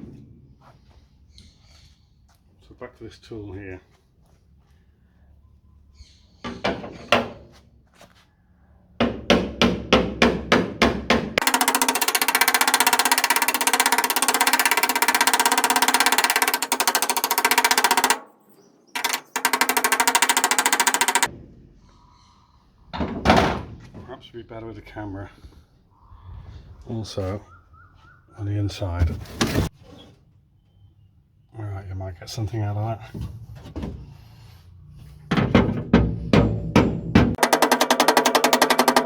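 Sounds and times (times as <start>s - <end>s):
pneumatic air hammer: 11.4s - 18.2s, 19.0s - 21.3s
hammer striking metal panel: 35.3s - 39.0s.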